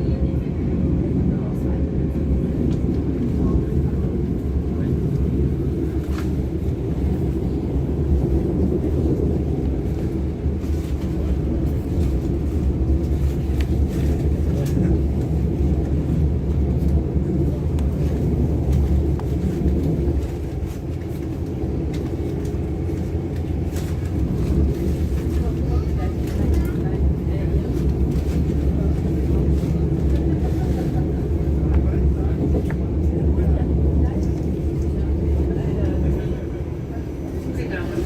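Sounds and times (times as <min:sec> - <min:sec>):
train running gear rumble: 0:00.0 - 0:38.0.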